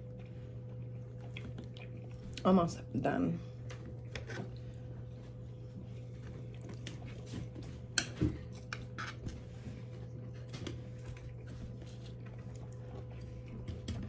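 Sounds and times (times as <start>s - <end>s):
quiet chewing: 0.0s - 2.6s, 3.4s - 14.0s
steady low hum: 0.0s - 14.0s.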